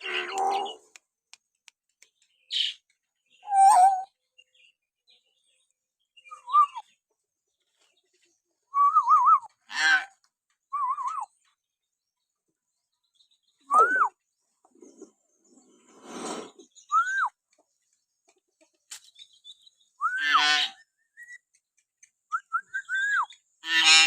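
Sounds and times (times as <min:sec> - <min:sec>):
myna warbling whistles: 0:13.7 - 0:14.2.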